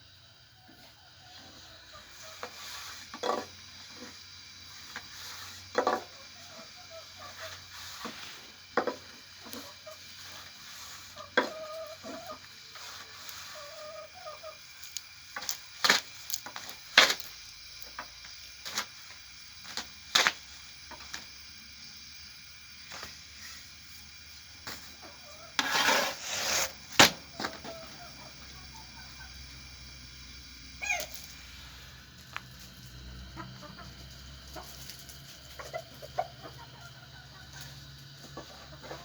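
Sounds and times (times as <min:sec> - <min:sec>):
chickens clucking: 0:00.6 - 0:15.6, 0:24.3 - 0:39.0.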